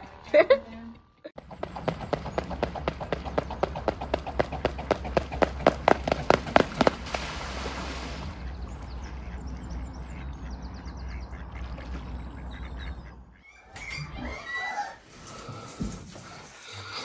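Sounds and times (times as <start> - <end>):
low wind rumble: 1.4 - 13.4
swan feet slapping water: 3.0 - 13.2
water splash: 6.6 - 8.5.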